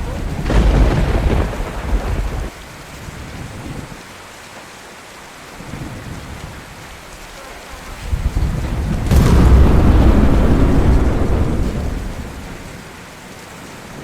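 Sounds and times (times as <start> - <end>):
low thunder rumble: 0.0 - 2.6, 7.9 - 13.0
rain falling: 0.0 - 14.0.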